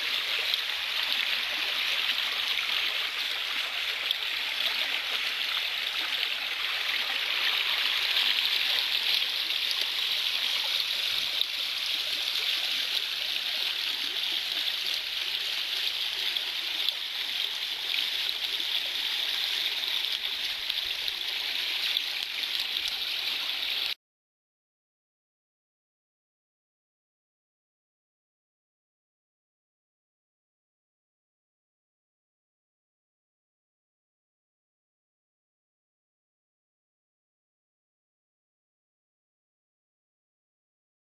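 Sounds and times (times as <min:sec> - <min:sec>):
stream babbling: 0:00.0 - 0:24.0.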